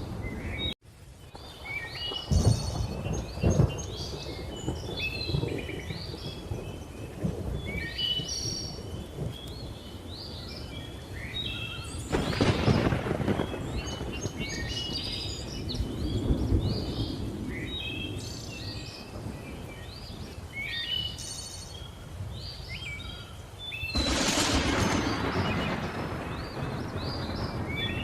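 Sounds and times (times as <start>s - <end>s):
low rumble of thunder: 0.0s - 20.9s, 23.9s - 28.0s
birds chirping: 0.0s - 28.0s.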